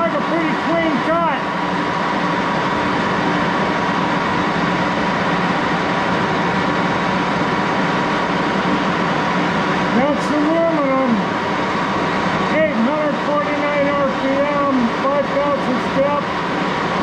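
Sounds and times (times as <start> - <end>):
lathe running with whine: 0.0 - 17.0.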